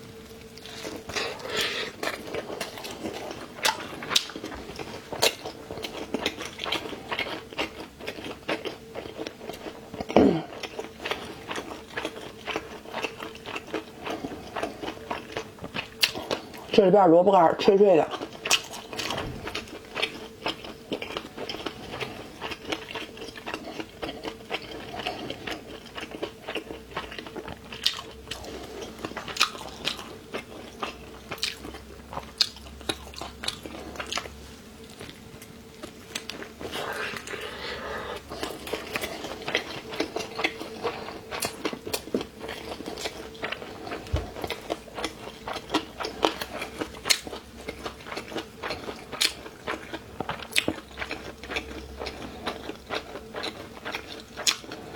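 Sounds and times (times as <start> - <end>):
crunchy chewing: 0.0 - 16.8, 18.1 - 54.9.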